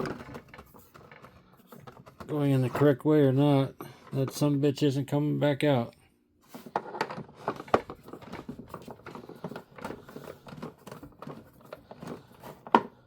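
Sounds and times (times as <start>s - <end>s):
screwdriver clicking and creaking in plastic: 0.0s - 3.0s, 6.8s - 13.0s.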